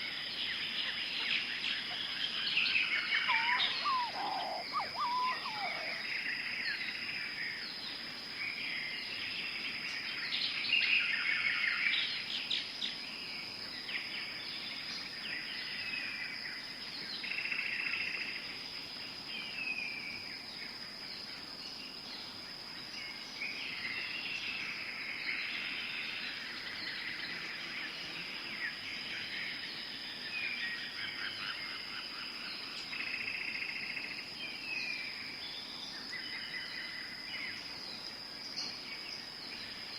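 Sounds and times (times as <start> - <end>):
birds chirping and calling: 0.6 - 6.1
descending whistled bird notes: 2.6 - 6.1.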